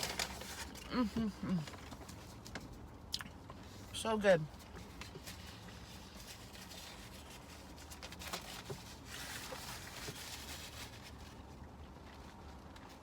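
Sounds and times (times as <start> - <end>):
faint chewing of crispy food: 0.0 - 13.0
soft rustle: 3.5 - 13.0.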